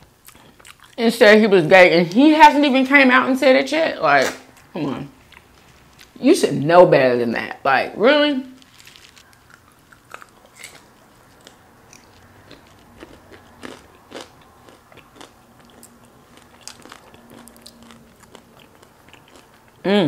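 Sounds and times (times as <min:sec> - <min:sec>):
crunching fried food: 0:08.5 - 0:19.9.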